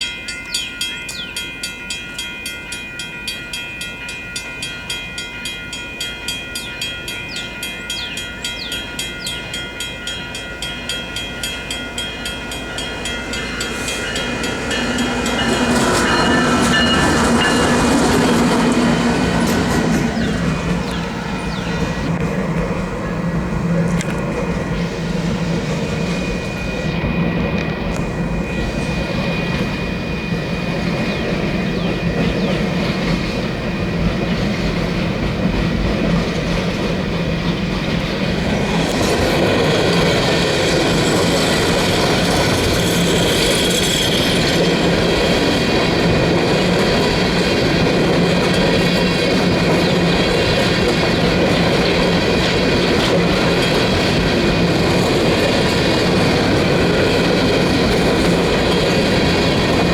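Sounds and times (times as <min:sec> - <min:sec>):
diesel locomotive drone: 0:00.0 - 0:59.9
steel wheels clattering on rail: 0:00.0 - 0:59.9
wheel squeal: 0:38.1 - 0:59.9.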